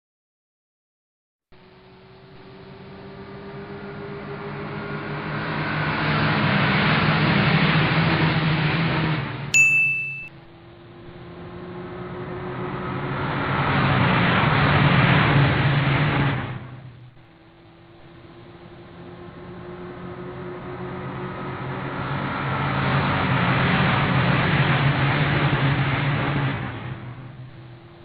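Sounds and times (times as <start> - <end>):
vehicle engine speeding up: 1.5 - 9.6, 10.4 - 28.0
sharp ding: 9.5 - 10.4.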